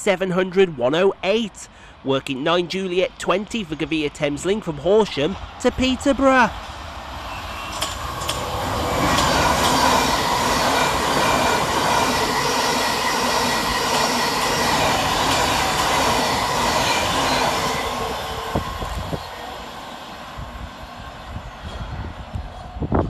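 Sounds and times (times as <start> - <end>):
train passing fast: 4.2 - 23.0
sharp clicks of wheels: 7.7 - 9.8.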